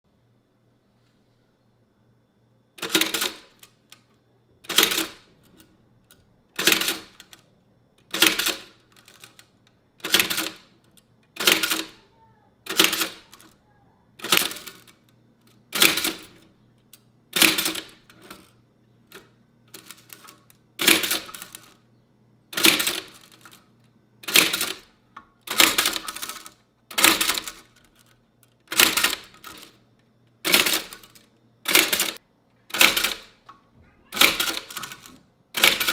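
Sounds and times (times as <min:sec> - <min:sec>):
typewriter key clacks: 0:02.8 - 0:03.7, 0:04.7 - 0:05.6, 0:06.6 - 0:07.4, 0:08.0 - 0:09.4, 0:10.0 - 0:12.0, 0:12.7 - 0:13.6, 0:15.8 - 0:16.4, 0:17.4 - 0:18.5, 0:19.7 - 0:21.8, 0:22.6 - 0:23.6, 0:24.2 - 0:24.8, 0:25.4 - 0:28.1, 0:28.7 - 0:29.7, 0:30.5 - 0:33.5, 0:34.2 - 0:35.9.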